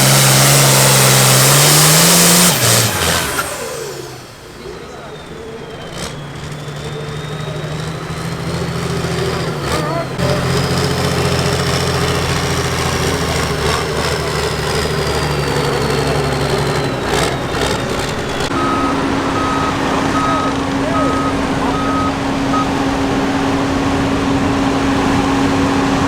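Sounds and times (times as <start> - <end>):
turbo whistle: 0.0 - 10.4, 13.1 - 23.0
diesel tractor engine under load: 0.0 - 26.0
reversing alarm beeping: 0.2 - 10.4, 12.7 - 23.8.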